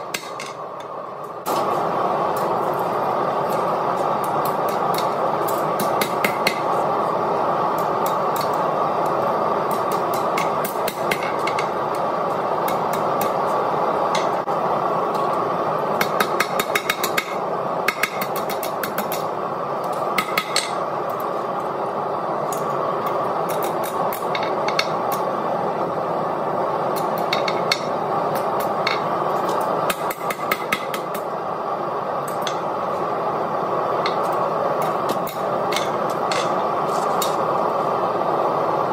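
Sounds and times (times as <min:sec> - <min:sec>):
hammer striking steel on anvil: 0:00.0 - 0:00.6
steady rushing noise: 0:00.0 - 0:38.9.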